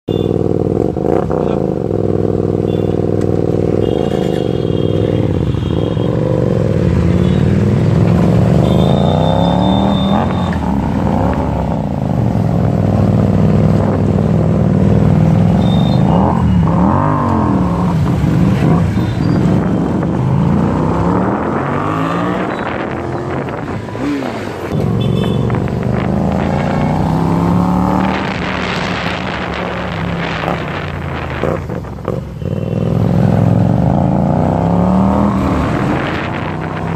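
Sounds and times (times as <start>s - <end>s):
motorcycle engine revving: 0.1s - 36.9s.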